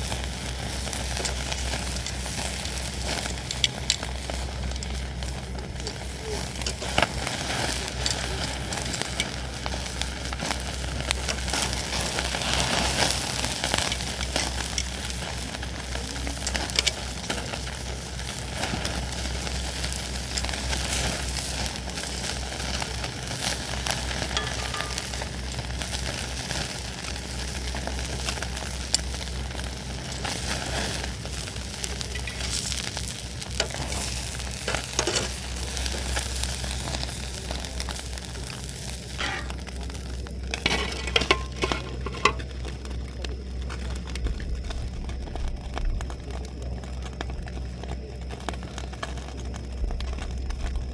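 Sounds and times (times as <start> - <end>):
campfire crackling pops: 0.0 - 50.9
campfire hissing: 0.0 - 50.9.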